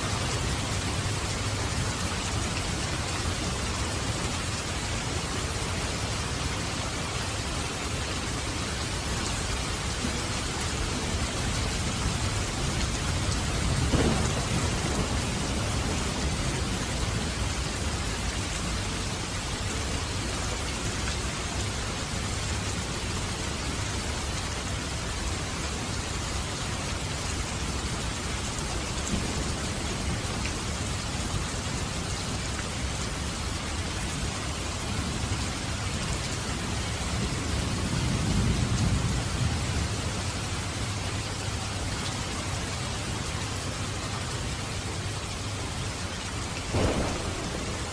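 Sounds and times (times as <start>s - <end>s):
steady rain falling: 0.0s - 47.9s
low roll of thunder: 9.8s - 18.1s, 46.7s - 47.9s.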